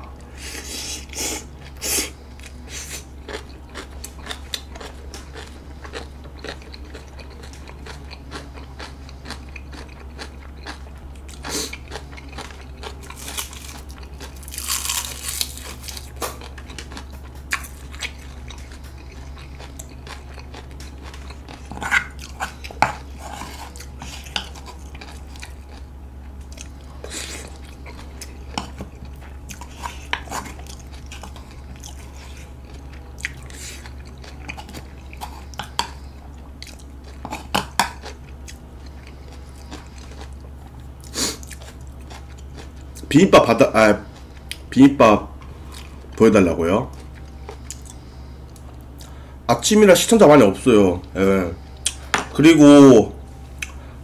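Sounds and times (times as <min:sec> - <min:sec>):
steady low hum: 0:00.0 - 0:54.0
food crunching: 0:01.0 - 0:44.8, 0:45.4 - 0:49.2
chewing and biting: 0:01.3 - 0:43.1, 0:46.9 - 0:49.2.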